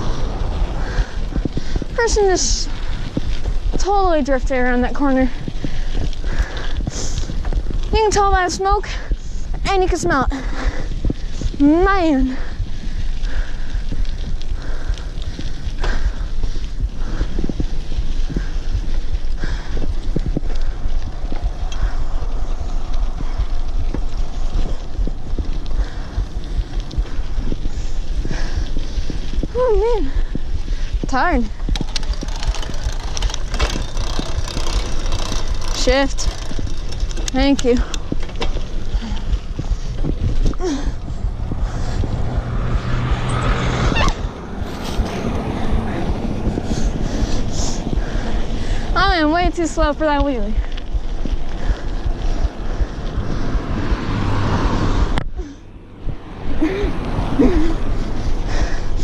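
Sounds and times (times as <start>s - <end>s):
wind buffeting microphone: 0.0s - 59.0s
bicycle knocks and rattles: 30.4s - 42.0s
faint clicks: 31.6s - 39.8s.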